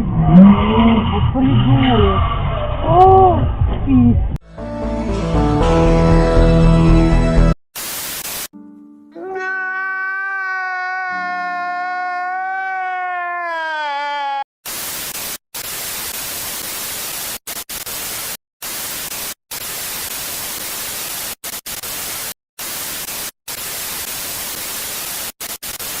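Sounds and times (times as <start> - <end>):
static hiss: 7.8 - 8.5, 14.7 - 26.0.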